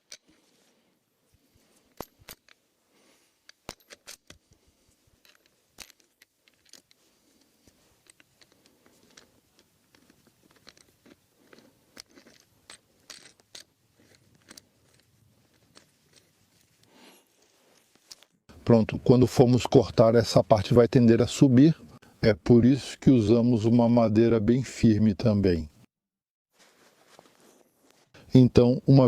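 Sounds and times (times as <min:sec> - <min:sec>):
wooden parts clicking and knocking: 0:03.4 - 0:04.6, 0:05.2 - 0:16.7.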